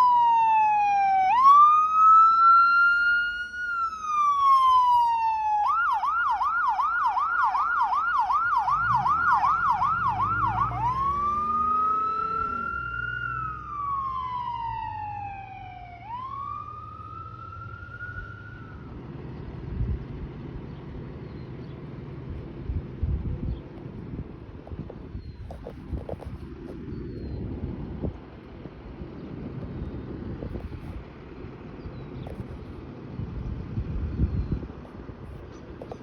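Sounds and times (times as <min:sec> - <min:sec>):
emergency vehicle siren: 0:00.0 - 0:19.4
low engine rumble: 0:08.4 - 0:36.0.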